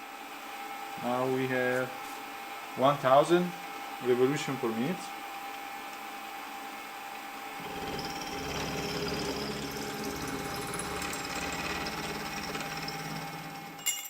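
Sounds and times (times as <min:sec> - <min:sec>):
milling machine spindle running: 0:07.4 - 0:13.9.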